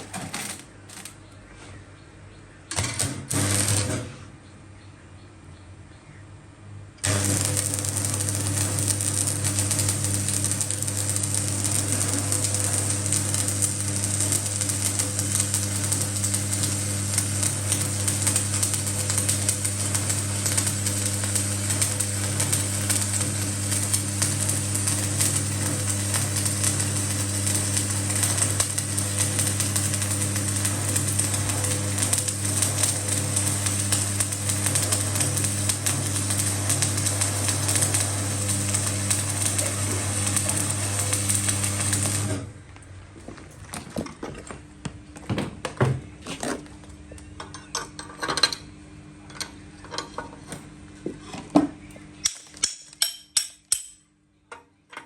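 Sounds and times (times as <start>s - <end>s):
welding arc crackling: 0.0s - 1.2s, 2.7s - 4.2s, 7.0s - 42.6s.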